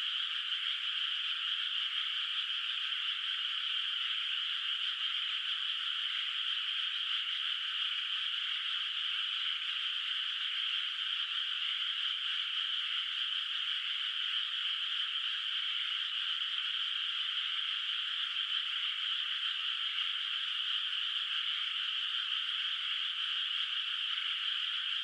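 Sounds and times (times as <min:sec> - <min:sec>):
chorus of frogs calling: 0:00.0 - 0:25.0.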